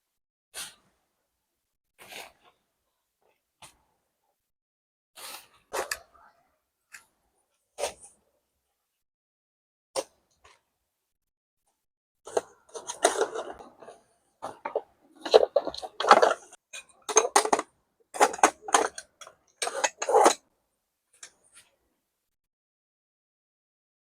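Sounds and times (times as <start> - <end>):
objects clattering and knocking: 12.3 - 20.4.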